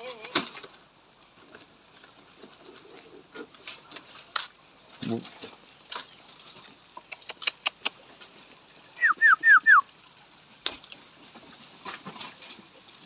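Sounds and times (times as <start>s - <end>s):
sharp clicks: 7.1s - 8.0s.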